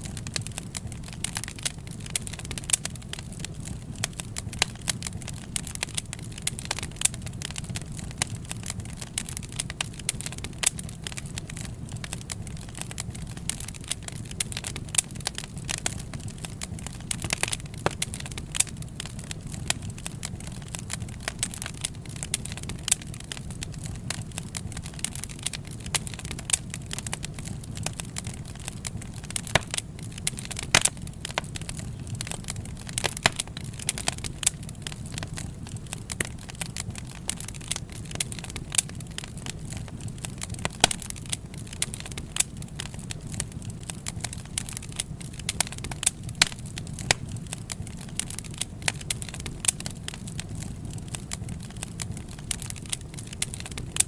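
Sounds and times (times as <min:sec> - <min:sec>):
low rumble of flames: 0:00.0 - 0:54.0
wood fire crackling and popping: 0:00.0 - 0:54.0.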